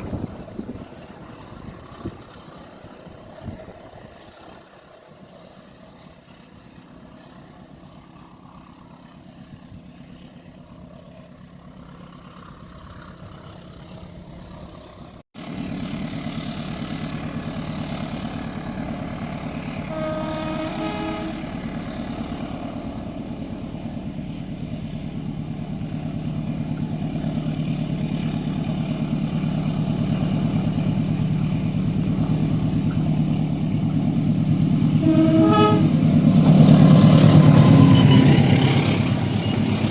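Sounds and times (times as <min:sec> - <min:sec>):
diesel locomotive engine drone: 0:00.0 - 0:39.9
short horn toots: 0:19.8 - 0:22.1, 0:34.8 - 0:38.6.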